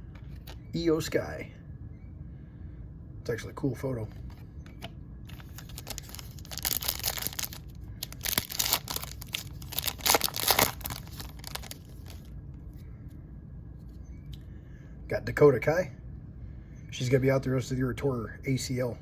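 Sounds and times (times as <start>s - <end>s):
cards and wrapper crinkling: 5.3s - 12.3s.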